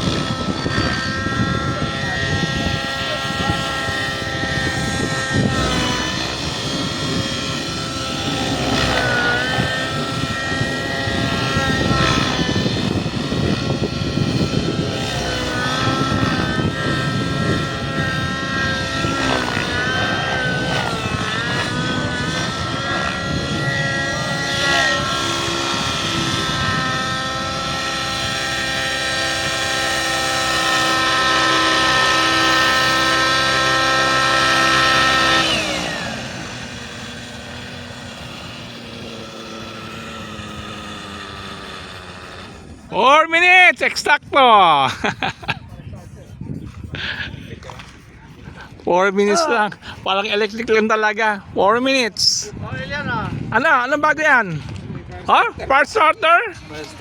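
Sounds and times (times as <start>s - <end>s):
model helicopter rotor whine: 0.0s - 57.0s.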